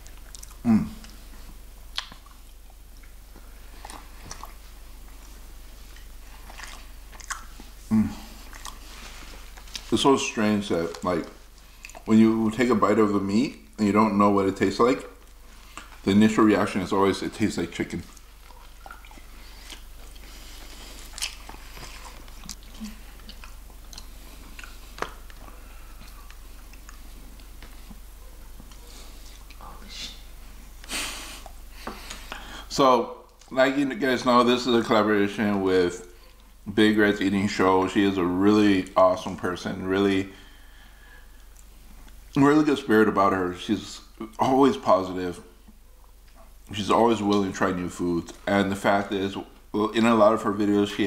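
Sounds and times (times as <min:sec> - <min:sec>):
chewing fried chicken: 0:00.0 - 0:12.2, 0:15.1 - 0:16.1, 0:17.6 - 0:32.5
short vocal sound: 0:00.6 - 0:01.1, 0:07.8 - 0:08.4
lip and tongue clicks: 0:01.9 - 0:03.2, 0:05.9 - 0:07.7, 0:08.4 - 0:08.8, 0:18.1 - 0:29.6.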